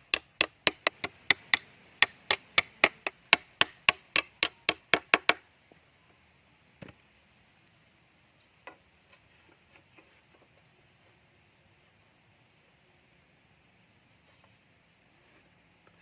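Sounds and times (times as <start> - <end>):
sharp strikes on wood: 0.0 - 5.4.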